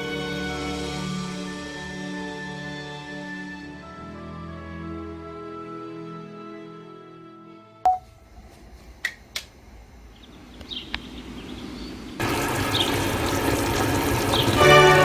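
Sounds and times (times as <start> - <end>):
tap water running: 12.2 - 15.0.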